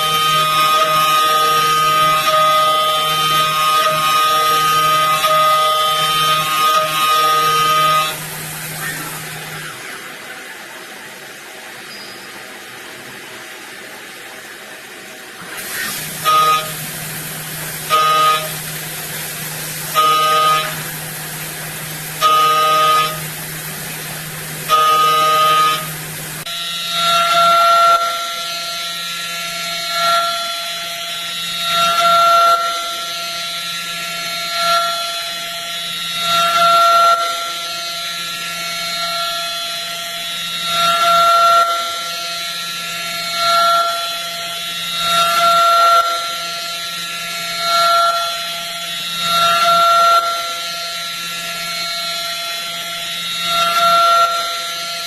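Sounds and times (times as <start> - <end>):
milling cutter squealing: 0.0 - 10.2, 11.8 - 12.4, 15.4 - 55.0
spindle whine: 0.0 - 11.1, 15.4 - 55.0
machine humming: 0.0 - 55.0
steady cutting tone: 15.4 - 28.2.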